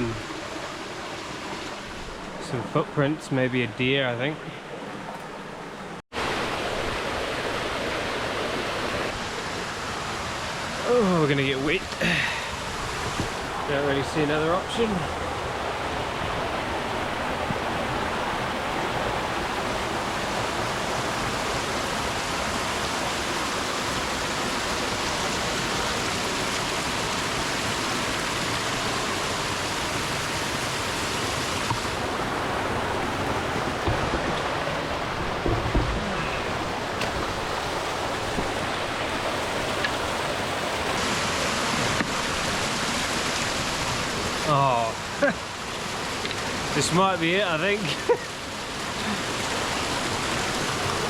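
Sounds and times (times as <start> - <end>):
water rushing over rocks: 0.0 - 51.0
dull low knocks: 33.7 - 37.5.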